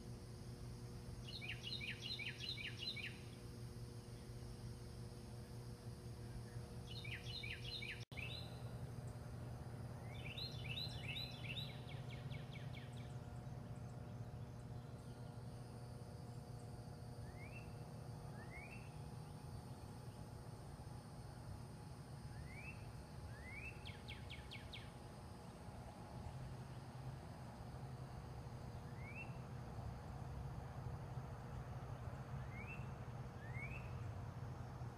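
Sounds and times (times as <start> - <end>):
steady low hum: 0.0 - 34.9
bird chirping: 1.2 - 3.4, 6.3 - 20.3, 22.3 - 25.0, 28.8 - 29.4, 32.4 - 34.0.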